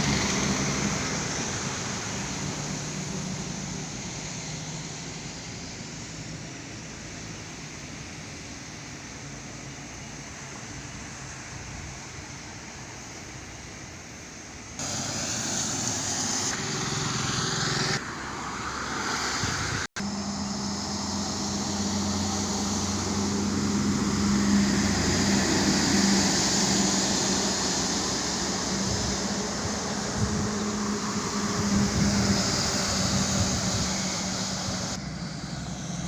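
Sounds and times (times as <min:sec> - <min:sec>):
road noise: 0:00.0 - 0:36.0
vehicle engine hum: 0:00.0 - 0:36.0.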